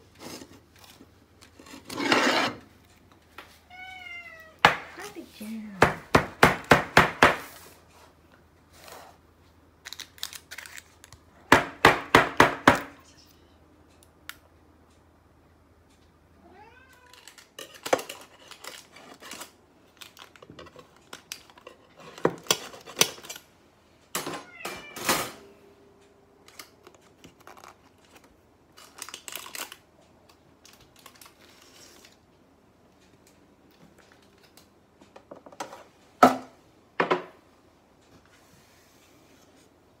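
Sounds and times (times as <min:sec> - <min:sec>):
knife scraping inside tin: 0:01.6 - 0:02.6.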